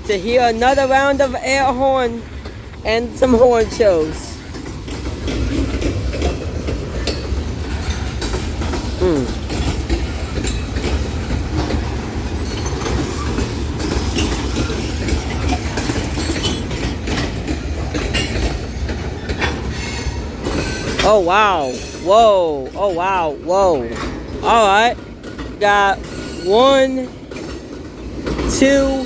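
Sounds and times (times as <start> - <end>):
freight train rumbling past: 0.0 - 29.0
train wheels clacking on rail joints: 0.0 - 29.0.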